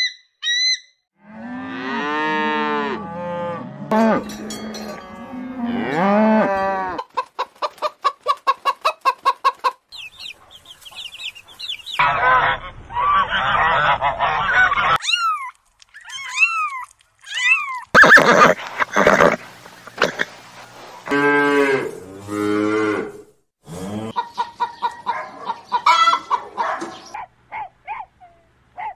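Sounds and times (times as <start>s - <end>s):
cow mooing: 1.2s - 7.0s, 21.1s - 24.2s
poultry calling: 3.9s - 15.4s, 24.0s - 28.9s
chicks peeping: 7.0s - 15.0s, 24.2s - 27.2s
repeated bird calls: 9.9s - 12.1s.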